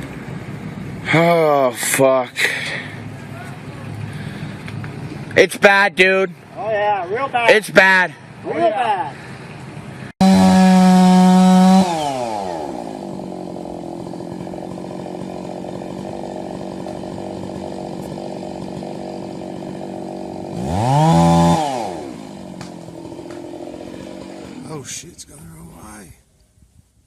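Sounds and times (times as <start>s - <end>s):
chainsaw revving and idling: 10.2s - 26.0s.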